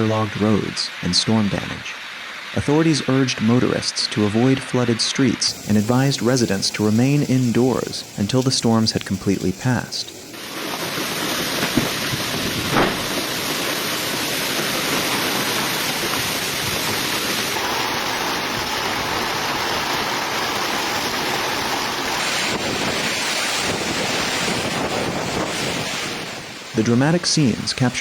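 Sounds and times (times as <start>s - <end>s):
rainstorm rushing: 0.0s - 28.0s
wind on microphone: 11.3s - 13.8s, 14.8s - 27.8s.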